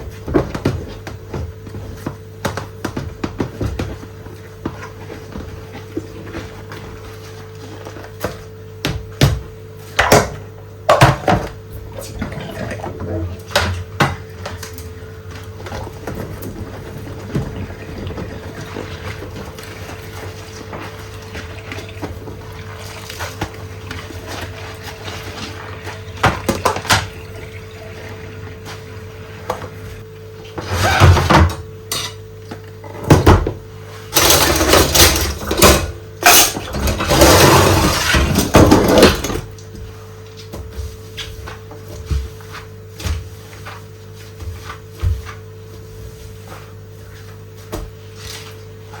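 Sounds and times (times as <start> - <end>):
dishes clinking while washed: 0.0 - 30.0, 30.6 - 39.6
rubber gloves rubbing dishes: 14.6 - 30.0
dishes clattering: 34.2 - 39.5.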